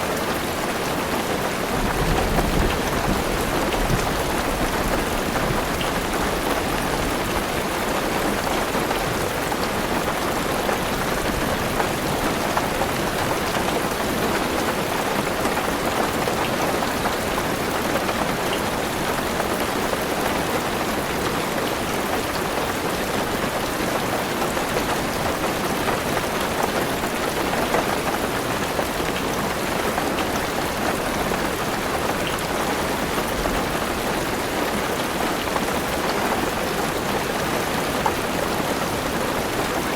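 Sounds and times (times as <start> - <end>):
heavy rain on car roof: 0.0 - 39.9.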